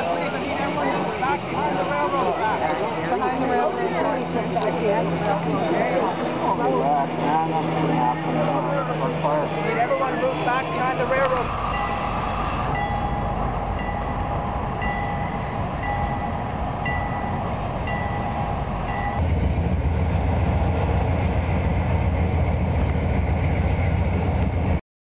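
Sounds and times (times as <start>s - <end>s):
low steady rumble: 0.1s - 24.8s
steady tone: 5.8s - 22.8s
ringing chime signal: 11.5s - 19.2s.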